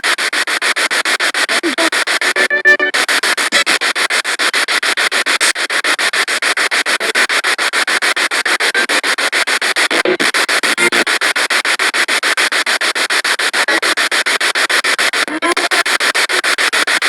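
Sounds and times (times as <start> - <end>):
pulsing radio static: 0.0 - 17.0
broadcast fragment: 1.6 - 3.6.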